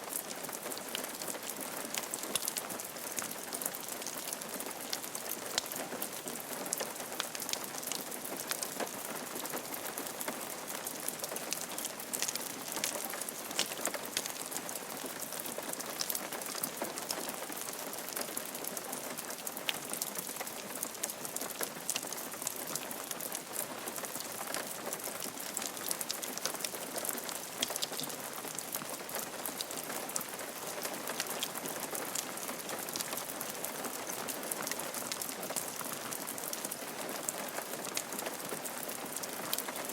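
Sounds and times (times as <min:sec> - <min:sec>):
rain falling on a roof: 0:00.0 - 0:39.9.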